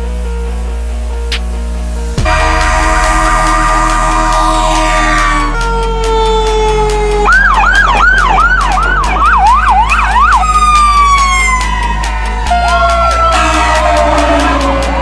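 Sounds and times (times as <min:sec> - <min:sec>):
steady low rumble: 0:00.0 - 0:10.1
fire engine siren wailing and yelping: 0:04.5 - 0:15.0.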